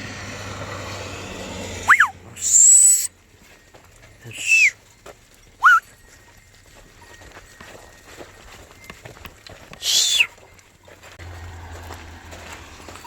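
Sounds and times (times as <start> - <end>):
traffic noise: 0.0 - 6.6, 7.2 - 13.0
short loud whistles: 1.8 - 3.1, 4.3 - 4.8, 5.6 - 5.9, 9.8 - 10.4.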